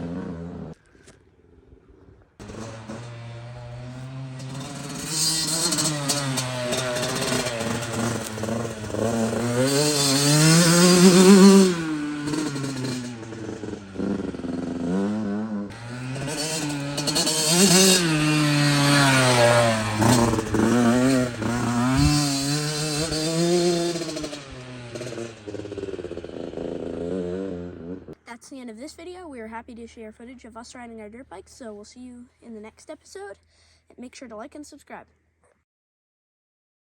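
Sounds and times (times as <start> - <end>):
dirt bike engine revving: 0.0 - 0.8, 2.4 - 28.2.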